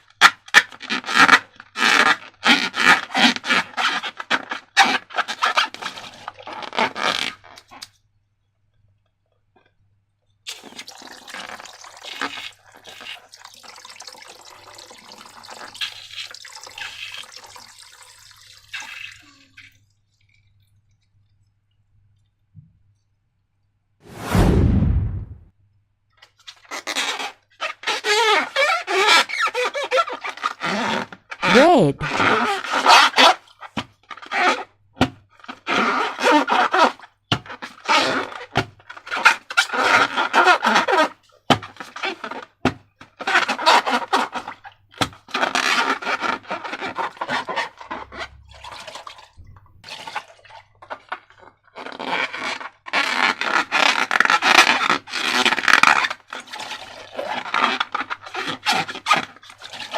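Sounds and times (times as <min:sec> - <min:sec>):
low wet burst: 0:24.1 - 0:25.5.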